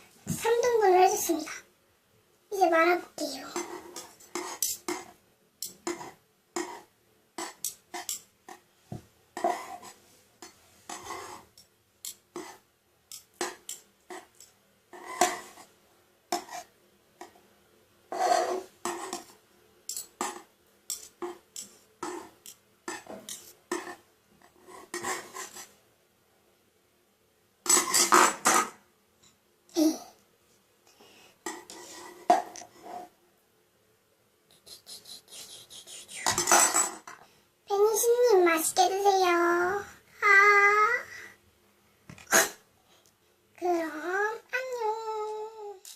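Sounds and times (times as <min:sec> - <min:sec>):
spatulas scraping on plate: 0:03.3 - 0:08.6, 0:09.4 - 0:15.7, 0:16.3 - 0:16.7, 0:18.1 - 0:25.8, 0:31.5 - 0:33.1, 0:35.2 - 0:36.9.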